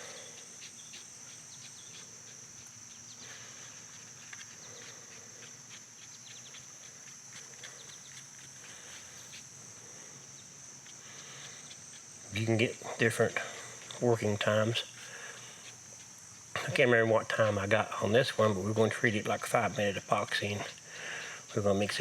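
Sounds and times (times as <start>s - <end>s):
crickets chirping: 0.0s - 22.0s
faint ticks and scrapes: 0.0s - 22.0s.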